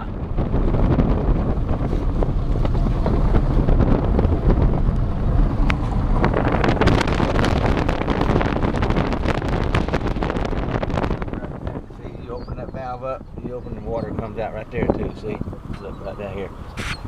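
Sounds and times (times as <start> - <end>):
dense crackle: 0.0 - 13.4
wind buffeting microphone: 0.0 - 17.0.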